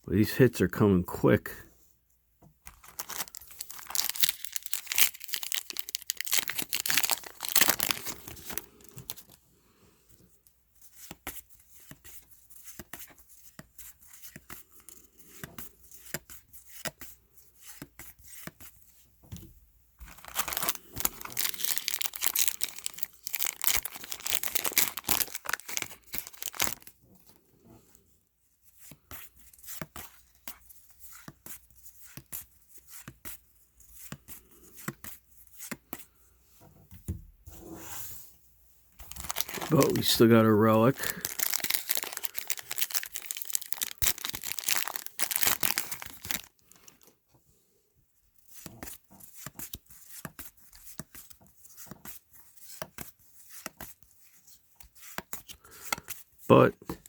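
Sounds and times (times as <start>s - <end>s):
wrappers tearing and crinkling: 2.7s - 9.4s, 20.0s - 26.9s, 39.0s - 47.0s.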